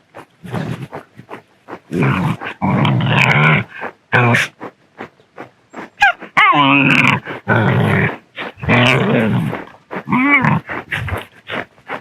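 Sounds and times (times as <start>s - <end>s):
dogs growling: 0.1s - 4.6s, 5.8s - 12.0s
dogs whining and yelping: 6.0s - 6.7s.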